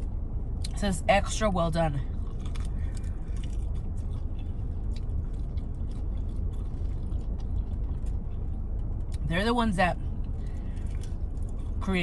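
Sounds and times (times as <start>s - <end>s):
low hum: 0.0s - 12.0s
person chewing: 2.1s - 9.3s, 10.1s - 11.8s.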